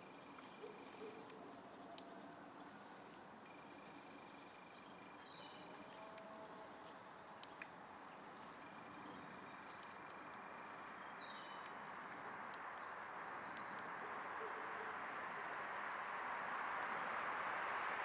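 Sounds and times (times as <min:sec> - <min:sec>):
songbird high chirps: 0:00.0 - 0:02.0, 0:03.5 - 0:11.8, 0:12.5 - 0:16.2.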